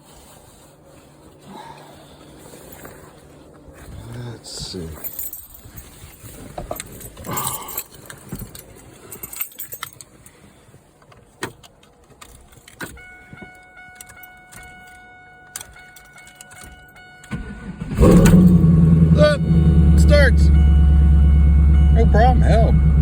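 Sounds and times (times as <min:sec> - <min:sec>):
keys jangling: 0:04.9 - 0:10.4, 0:14.0 - 0:17.0
car starter cranking: 0:16.4 - 0:23.0
steady electronic tone from car: 0:16.8 - 0:23.0.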